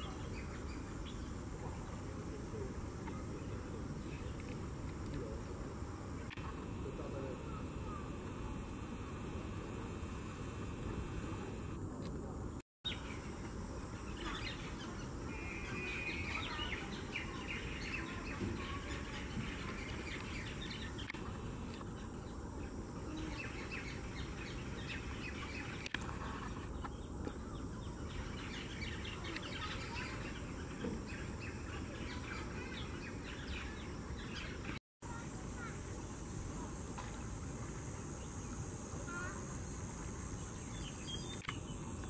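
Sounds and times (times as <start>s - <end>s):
steady background noise: 0.0s - 42.0s
wild birds chirping: 6.1s - 11.8s, 12.9s - 35.7s, 38.1s - 42.0s.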